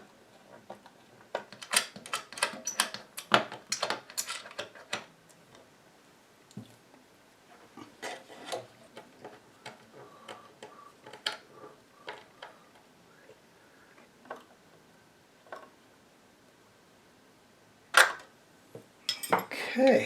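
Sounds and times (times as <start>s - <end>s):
hand tools clicking and tapping: 0.8s - 5.1s, 19.1s - 19.5s.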